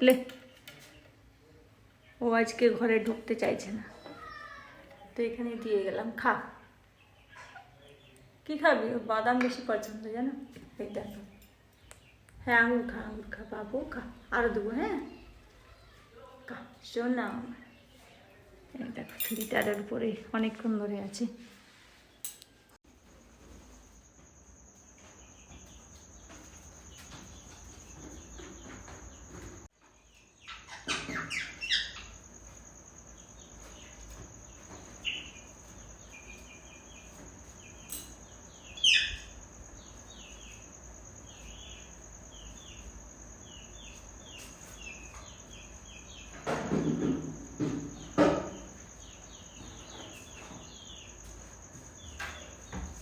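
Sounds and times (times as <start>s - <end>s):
birds chirping: 0.0s - 19.9s, 23.2s - 53.0s
high insect drone: 31.8s - 53.0s.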